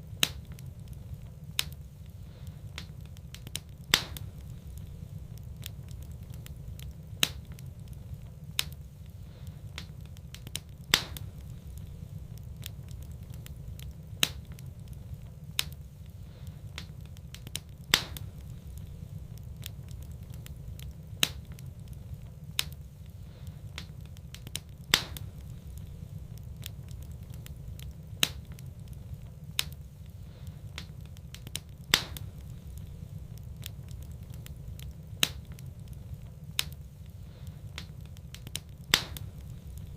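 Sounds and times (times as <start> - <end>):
steady low rumble: 0.0 - 39.9
wood fire crackling: 0.0 - 39.9.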